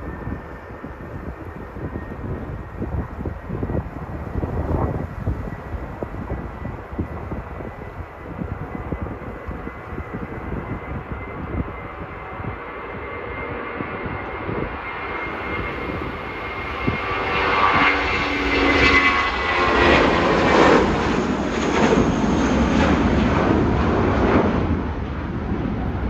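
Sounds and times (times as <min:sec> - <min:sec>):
jet engines passing: 0:00.0 - 0:26.0
wind on microphone: 0:00.0 - 0:26.0.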